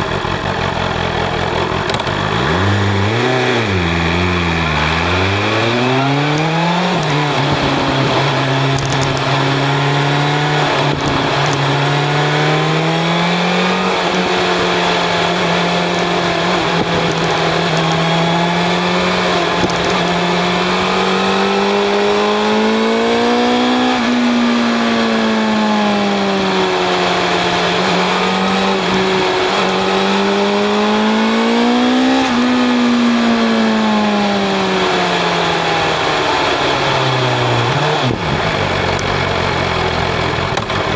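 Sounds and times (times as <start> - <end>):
motorcycle engine revving: 0.0 - 40.9
wind rush: 6.5 - 8.7.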